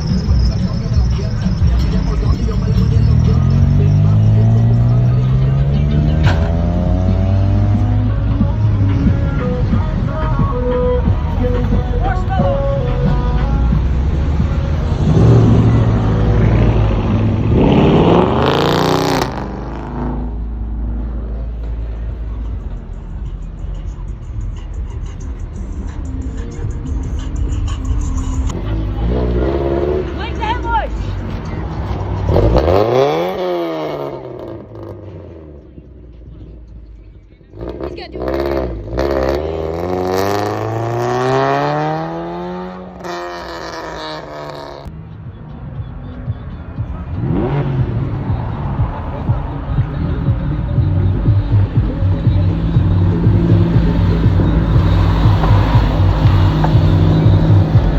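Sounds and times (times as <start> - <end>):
car engine revving: 0.0 - 36.5, 37.4 - 45.0, 45.8 - 57.9.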